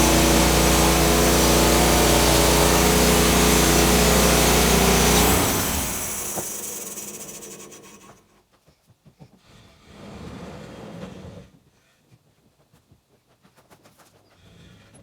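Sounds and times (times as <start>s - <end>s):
engine running: 0.0s - 8.2s
high whir: 0.0s - 8.2s.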